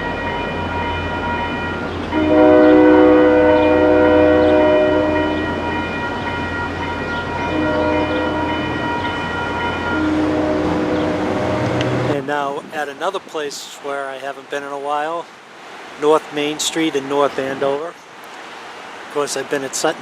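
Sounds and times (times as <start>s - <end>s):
train air horn blasts: 2.1s - 5.8s, 7.5s - 8.8s, 9.8s - 12.1s.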